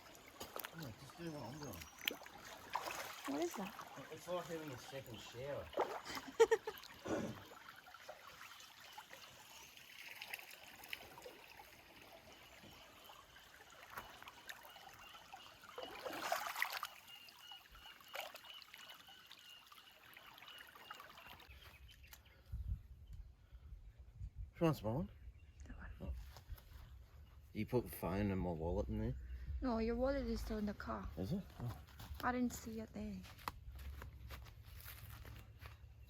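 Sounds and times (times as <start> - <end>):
water splashing: 0.0 - 21.6
creek water trickling: 0.0 - 22.5.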